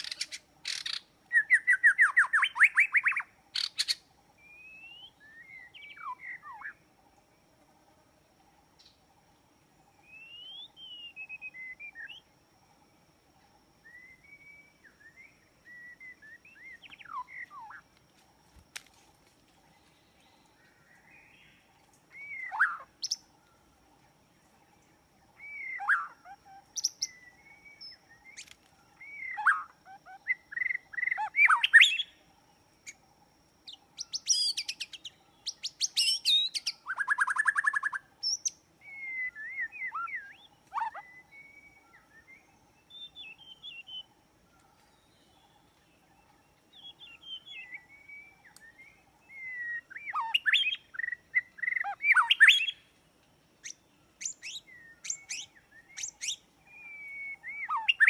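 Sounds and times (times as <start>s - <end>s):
bird trills: 0.0s - 6.8s, 13.8s - 17.8s, 20.2s - 23.7s, 25.3s - 33.0s, 33.6s - 52.9s, 53.6s - 58.0s
birds chirping and calling: 0.0s - 6.8s, 13.9s - 17.9s, 19.7s - 23.8s, 24.6s - 33.0s, 33.6s - 52.8s, 53.6s - 58.0s.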